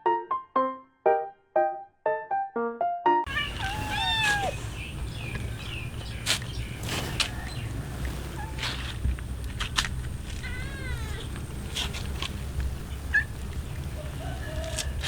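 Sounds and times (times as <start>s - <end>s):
piano jingle: 0.0s - 3.8s
cats meowing: 3.3s - 8.7s, 10.0s - 15.0s
low background rumble: 3.3s - 15.0s.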